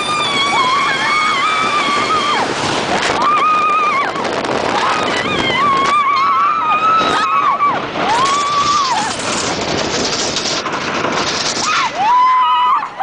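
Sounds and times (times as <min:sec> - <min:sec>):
wind rushing: 0:00.0 - 0:12.4
coaster train track noise: 0:00.0 - 0:13.0
roller coaster riders whooping: 0:00.0 - 0:13.0.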